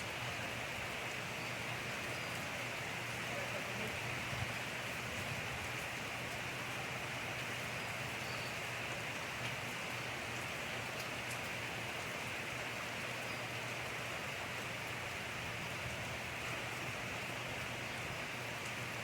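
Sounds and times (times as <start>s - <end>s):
steady rain falling: 0.0s - 19.0s
faint raindrop ticks: 0.9s - 2.5s, 3.1s - 14.0s, 17.6s - 19.0s.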